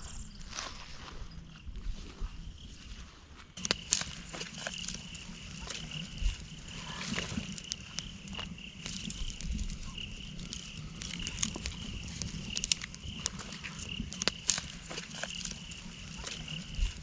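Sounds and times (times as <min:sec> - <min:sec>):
sharp clicks and crackles: 0:03.6 - 0:17.0.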